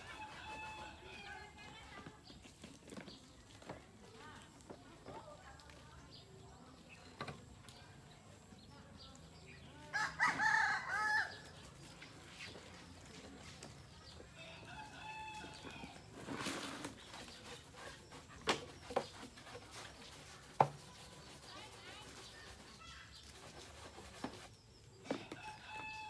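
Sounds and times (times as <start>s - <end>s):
rooster crowing: 10.0s - 11.5s, 14.7s - 15.9s, 25.3s - 26.0s.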